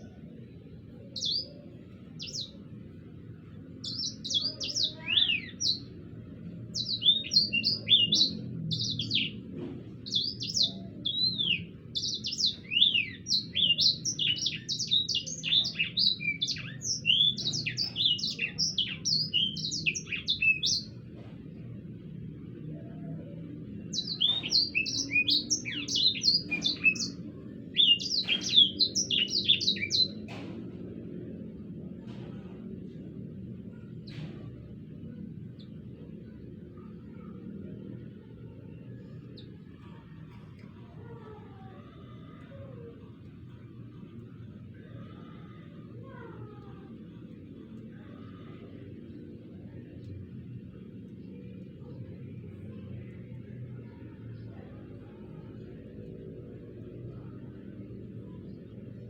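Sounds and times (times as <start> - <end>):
songbird singing rolling song: 0.0 - 30.4
low background hum: 0.0 - 59.0.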